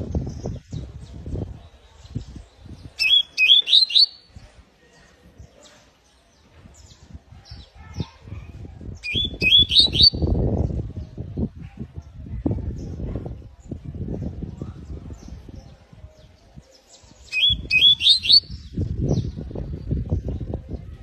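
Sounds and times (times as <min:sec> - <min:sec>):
canary chirping: 0:03.0 - 0:04.3, 0:09.0 - 0:10.2, 0:17.3 - 0:18.6.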